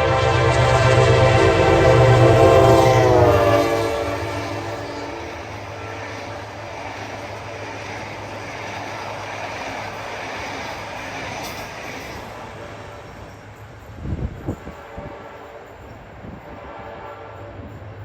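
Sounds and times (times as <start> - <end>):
locomotive horn: 0.0 - 6.6, 14.7 - 17.9
train coaches rumbling past on rails: 0.0 - 18.0.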